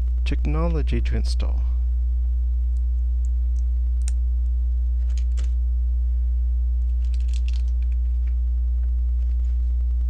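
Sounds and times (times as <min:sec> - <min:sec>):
loud electrical hum: 0:00.0 - 0:10.0
plastic pieces clicking and rattling: 0:05.0 - 0:05.5, 0:07.0 - 0:08.3.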